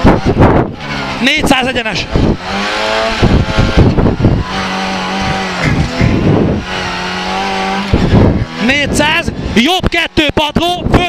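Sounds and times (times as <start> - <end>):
rally car engine revving high: 0.0 - 11.0
sharp knocks: 4.8 - 6.4.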